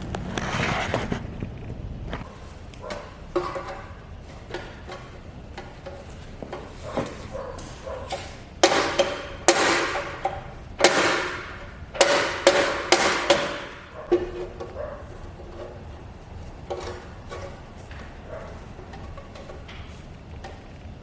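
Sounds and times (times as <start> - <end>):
sharp workshop strikes with ringing: 8.6 - 10.2, 10.8 - 13.9.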